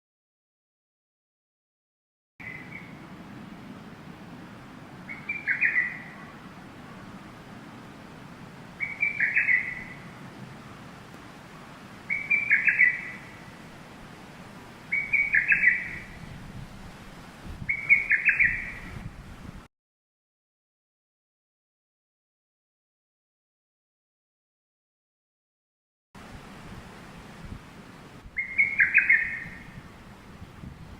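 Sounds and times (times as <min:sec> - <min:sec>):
bird chirping: 0:02.4 - 0:03.0, 0:05.1 - 0:07.1, 0:08.8 - 0:10.2, 0:12.1 - 0:13.5, 0:14.9 - 0:16.4, 0:17.7 - 0:19.0, 0:28.4 - 0:29.9.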